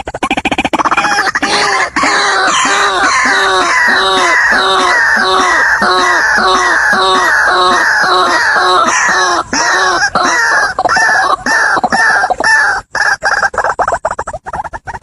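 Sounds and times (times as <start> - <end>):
waterhen calling: 0.7 - 15.0.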